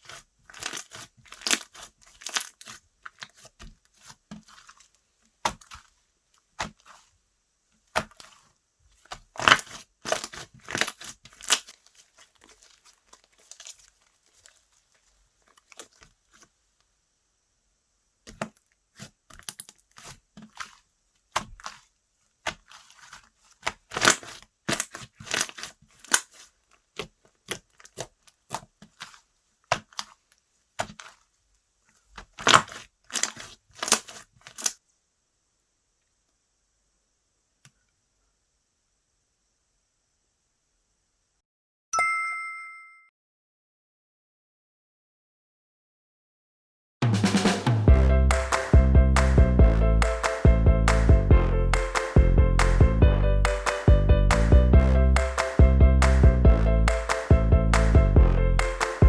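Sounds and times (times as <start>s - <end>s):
slime popping and crackling: 0.0s - 6.0s, 6.6s - 7.1s, 7.8s - 16.4s, 18.2s - 31.2s, 32.2s - 34.8s.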